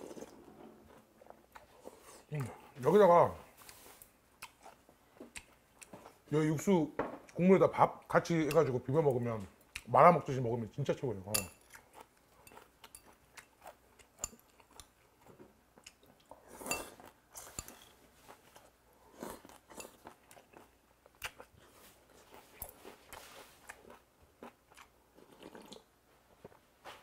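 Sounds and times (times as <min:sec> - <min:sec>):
chewing and crunching: 0:00.0 - 0:02.7, 0:03.6 - 0:06.3, 0:11.5 - 0:26.6.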